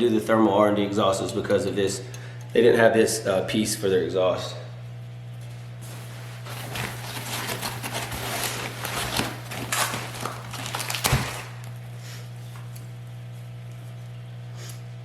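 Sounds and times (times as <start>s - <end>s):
low electrical hum: 0.0s - 15.0s
packaging rustling: 5.8s - 11.9s.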